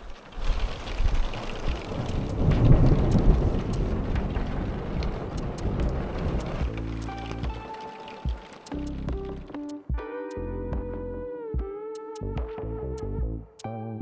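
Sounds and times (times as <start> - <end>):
steady rain falling: 0.0 - 9.8
low rumble: 0.6 - 7.6
sharp drop ticks: 1.9 - 10.4.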